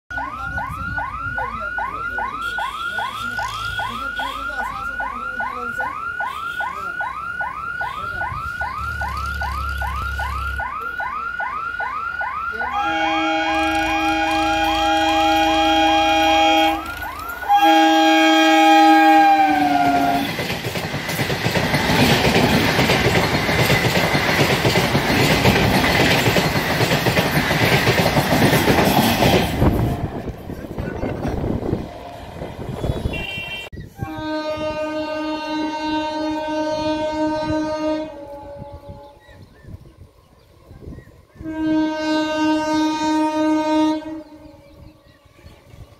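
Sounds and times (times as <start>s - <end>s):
train passing with wheel clatter: 0.1s - 11.0s, 12.9s - 45.9s
warbling siren-like tone: 0.1s - 20.2s
train horn blasts: 12.7s - 20.4s, 32.0s - 39.4s, 41.4s - 44.9s.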